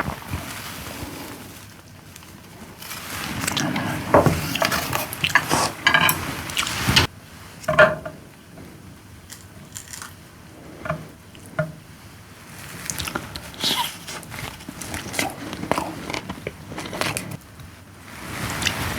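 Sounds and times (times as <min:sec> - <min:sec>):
chewing and wet mouth sounds: 0:12.7 - 0:17.4.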